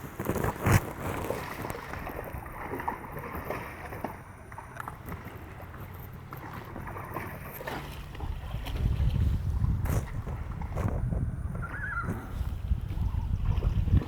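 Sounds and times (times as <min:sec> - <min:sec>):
river water splashing: 0:00.0 - 0:14.0
wind rumbling on microphone: 0:08.1 - 0:14.0.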